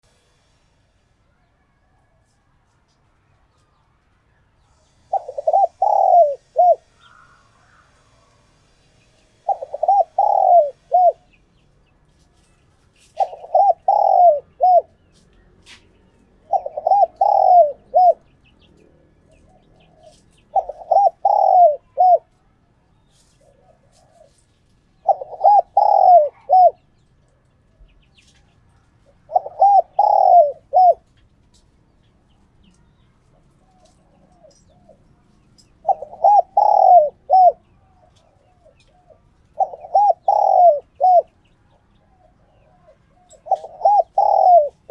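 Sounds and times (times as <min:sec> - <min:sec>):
dove cooing: 0:05.0 - 0:07.3, 0:09.4 - 0:11.3, 0:13.0 - 0:15.0, 0:16.4 - 0:18.3, 0:19.3 - 0:22.4, 0:25.0 - 0:26.8, 0:29.0 - 0:31.1, 0:35.8 - 0:41.4, 0:42.1 - 0:44.9.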